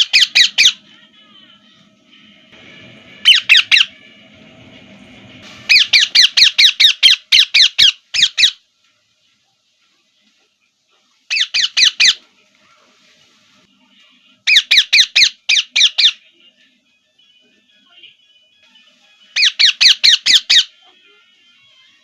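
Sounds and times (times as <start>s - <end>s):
parrot shrill calls: 0.0s - 0.8s, 3.2s - 3.9s, 5.7s - 8.6s, 11.3s - 12.2s, 14.5s - 16.2s, 19.4s - 20.8s.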